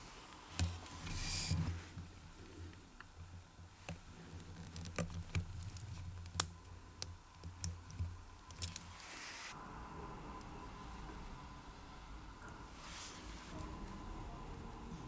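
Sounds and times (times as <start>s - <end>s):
tools clicking on watch case: 3.8s - 9.1s
brief hiss: 8.9s - 9.6s.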